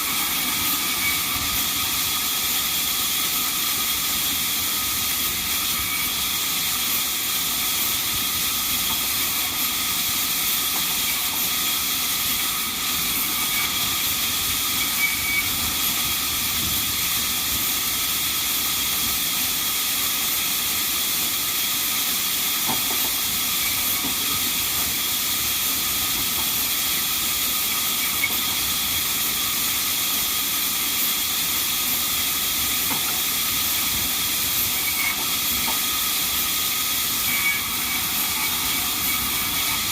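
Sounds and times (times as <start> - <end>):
band saw running: 31.9 - 39.9.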